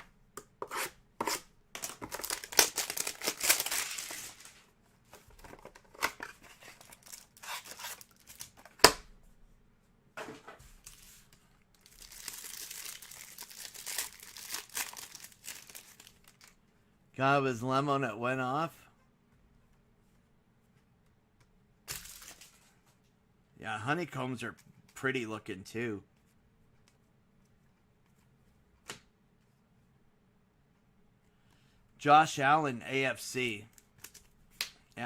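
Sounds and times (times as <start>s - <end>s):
packaging tearing and crinkling: 1.8s - 4.6s, 6.6s - 8.6s, 11.8s - 16.5s.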